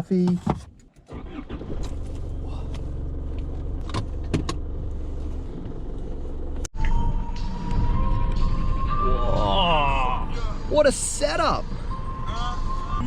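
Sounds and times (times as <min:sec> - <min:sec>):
car engine and road rumble: 0:00.0 - 0:13.0
music with steady tones: 0:06.8 - 0:10.7.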